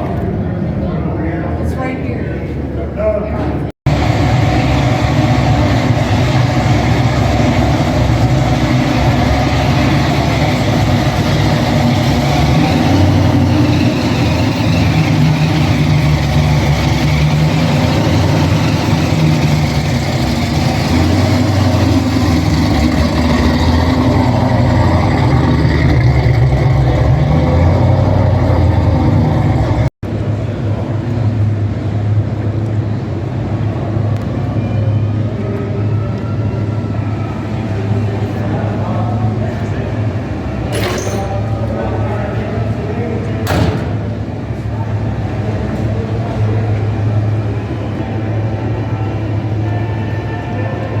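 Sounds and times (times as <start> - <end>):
car engine running: 3.9 - 33.2.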